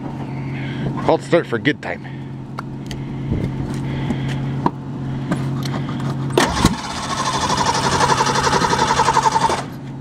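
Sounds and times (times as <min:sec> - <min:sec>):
engine hum: 0:00.0 - 0:10.0
starter cranking engine: 0:06.4 - 0:09.8.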